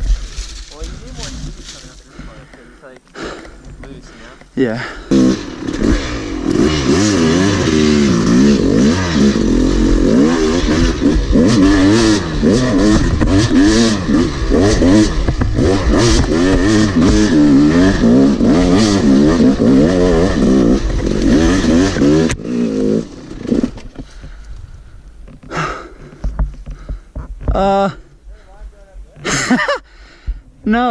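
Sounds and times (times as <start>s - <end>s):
dirt bike engine revving: 0.0s - 24.5s.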